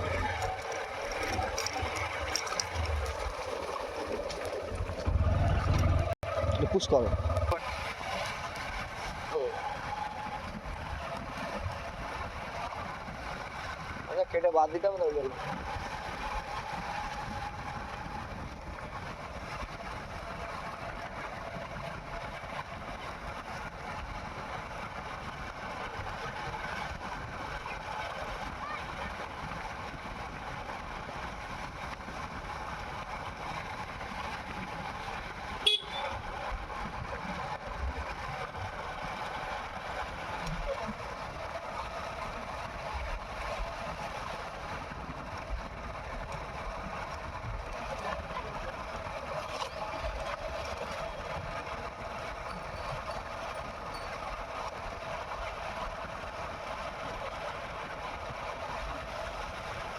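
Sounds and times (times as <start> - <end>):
vehicle running: 0.0 - 59.9
faint horn-like tones: 35.6 - 36.2.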